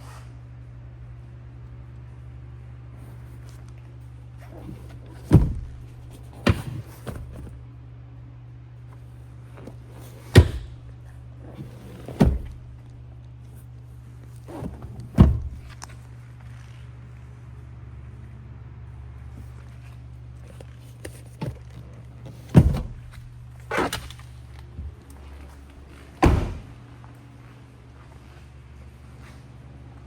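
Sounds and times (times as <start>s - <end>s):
steady low hum: 0.0s - 30.0s
vehicle doors shutting: 4.4s - 7.6s, 9.5s - 13.0s, 14.3s - 16.0s, 20.5s - 26.8s.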